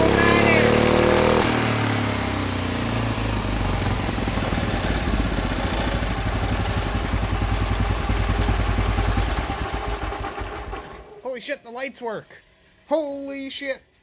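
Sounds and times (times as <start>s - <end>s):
tractor engine running: 0.0s - 11.2s.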